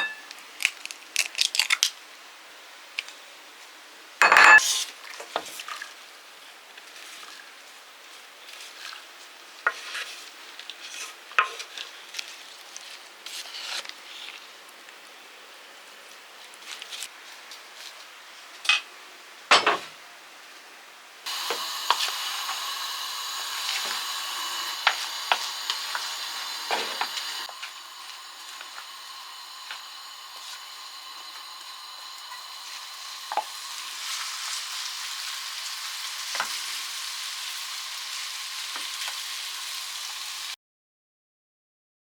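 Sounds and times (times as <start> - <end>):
vegetables sizzling in a frying pan: 9.5 - 14.3, 21.3 - 40.6.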